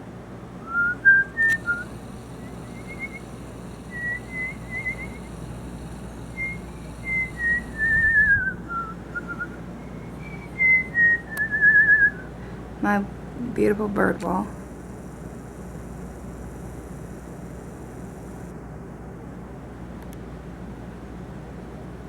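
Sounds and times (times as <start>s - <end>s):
person whistling: 0.6s - 1.9s, 3.9s - 5.3s, 6.4s - 12.3s.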